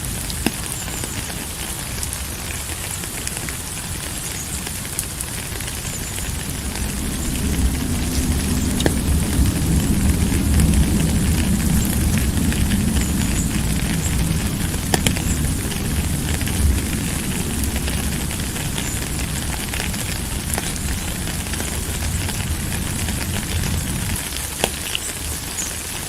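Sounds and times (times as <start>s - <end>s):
steady rain hiss: 0.0s - 26.0s
sharp drip-like taps: 0.2s - 9.4s, 11.4s - 19.2s
deep low rumble: 5.2s - 24.4s.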